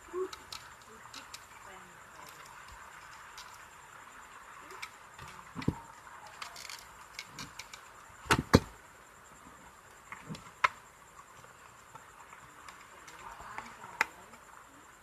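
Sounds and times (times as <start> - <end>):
sharp knocks: 8.2 - 8.7.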